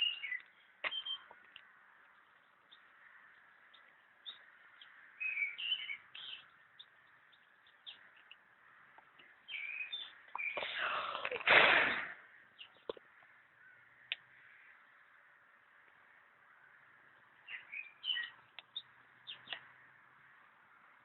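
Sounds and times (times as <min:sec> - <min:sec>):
small birds chirping: 0:00.0 - 0:21.0
loud harsh burst: 0:11.5 - 0:12.2.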